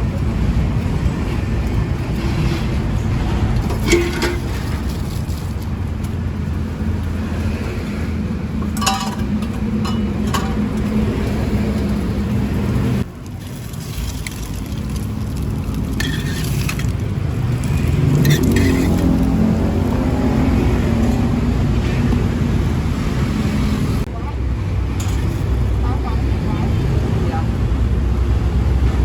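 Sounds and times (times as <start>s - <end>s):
motorbikes passing: 0.0s - 13.4s, 14.4s - 29.0s.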